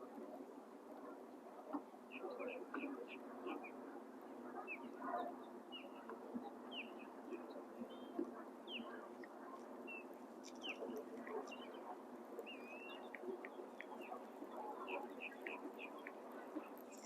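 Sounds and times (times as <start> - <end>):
birds chirping: 9.9 - 17.0.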